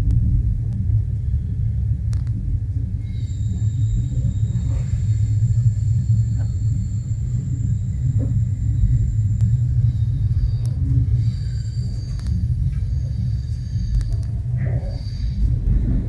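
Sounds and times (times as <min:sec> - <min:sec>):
train rumbling: 0:00.0 - 0:16.0
faint clicks: 0:12.0 - 0:13.1, 0:13.8 - 0:15.8.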